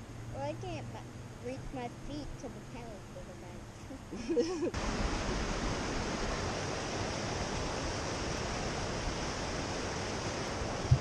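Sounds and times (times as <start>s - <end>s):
fast-flowing water rushing: 4.7s - 11.0s.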